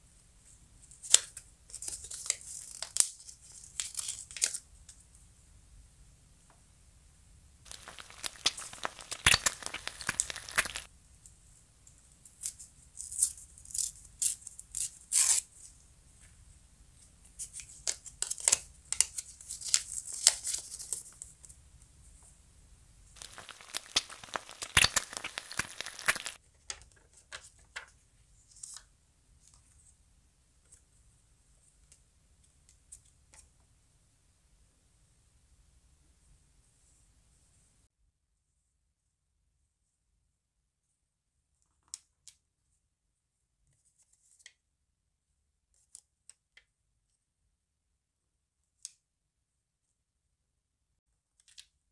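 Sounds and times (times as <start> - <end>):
paper rustling and crinkling: 7.7 - 10.9, 23.2 - 28.8.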